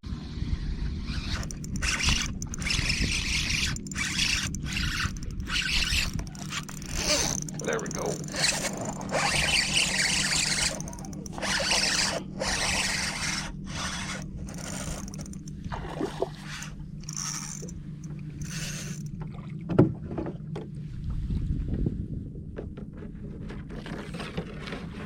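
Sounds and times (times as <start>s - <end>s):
steady low hum: 0.6s - 21.8s
water swishing and splashing: 14.6s - 17.7s.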